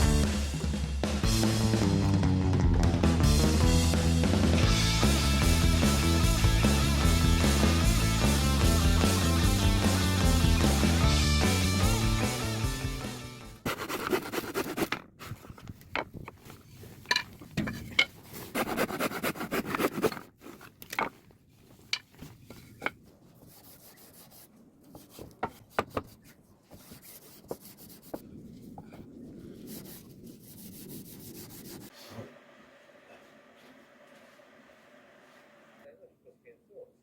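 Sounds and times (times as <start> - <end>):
wood rubbed and scraped by hand: 13.6 - 32.3.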